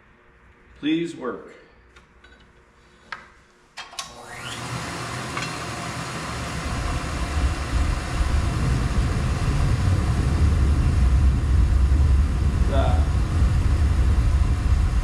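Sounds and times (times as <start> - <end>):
blower motor whine: 3.9 - 15.0
burner rumble: 6.2 - 15.0.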